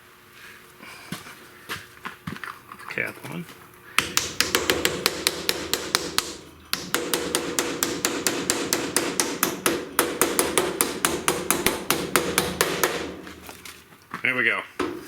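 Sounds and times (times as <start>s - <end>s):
quick hammer taps on metal: 4.0s - 13.7s.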